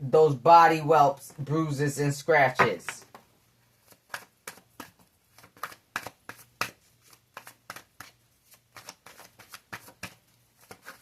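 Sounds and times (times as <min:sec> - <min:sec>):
cards being shuffled: 0:02.6 - 0:11.0.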